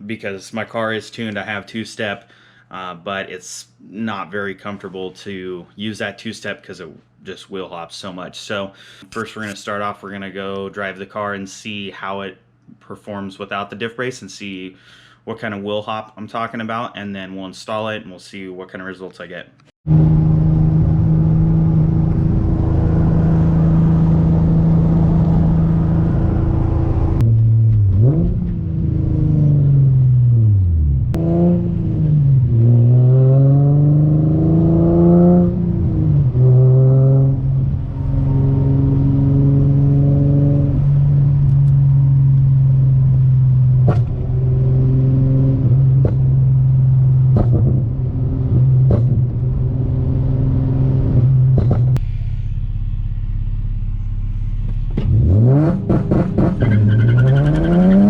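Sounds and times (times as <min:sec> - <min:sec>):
car engine revving: 0:19.9 - 0:58.0.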